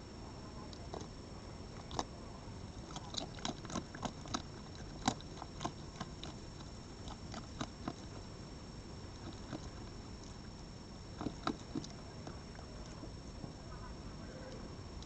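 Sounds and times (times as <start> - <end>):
animal chewing and crunching food: 0.6 - 8.4, 9.1 - 15.0.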